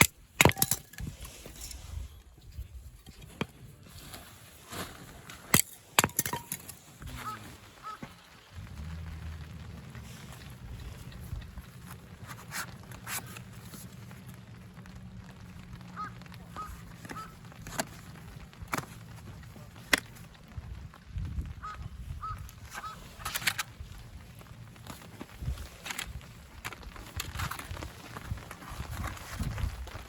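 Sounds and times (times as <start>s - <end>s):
bird calls: 7.1s - 9.5s, 21.6s - 23.0s
steady low hum: 8.5s - 16.8s.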